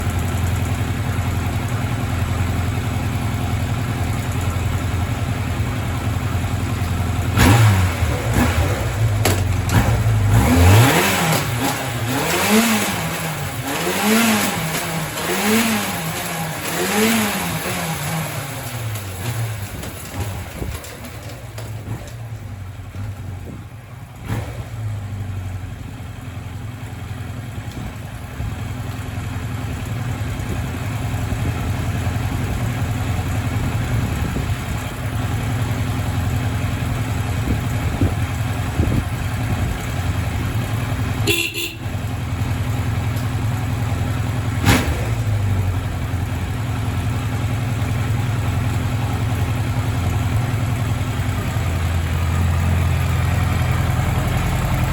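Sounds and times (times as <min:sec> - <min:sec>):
motorcycle engine idling: 0:00.0 - 0:54.9
motorcycle horn: 0:41.2 - 0:42.2.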